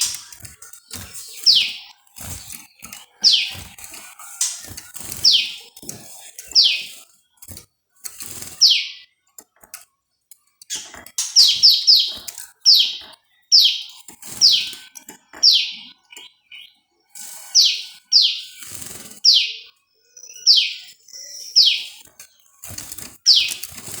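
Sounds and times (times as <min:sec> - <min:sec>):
clicks and rustles: 0:00.0 - 0:08.7, 0:09.3 - 0:12.7, 0:22.0 - 0:24.0.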